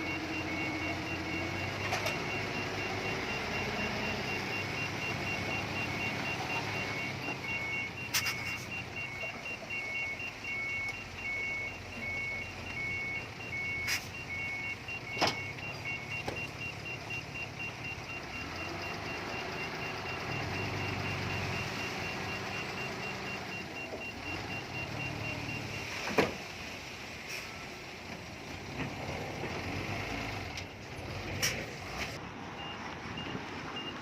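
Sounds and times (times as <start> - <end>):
diesel engine running: 0.0 - 25.8
reversing alarm beeping: 0.0 - 26.1, 32.6 - 34.0.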